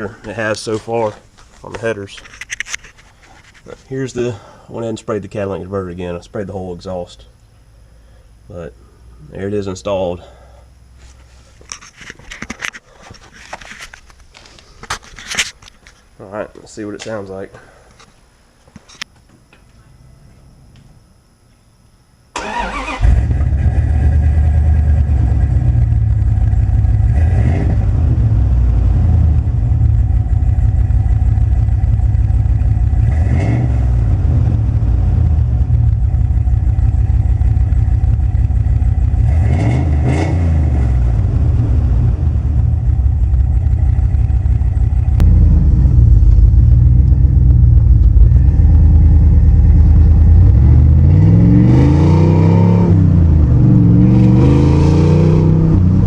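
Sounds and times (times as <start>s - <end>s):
engine starting: 22.4s - 24.1s
engine revving: 22.4s - 30.1s, 31.4s - 35.9s, 37.4s - 43.8s, 44.6s - 56.0s
loud low engine idle: 29.4s - 33.1s, 34.8s - 39.3s, 42.2s - 50.5s.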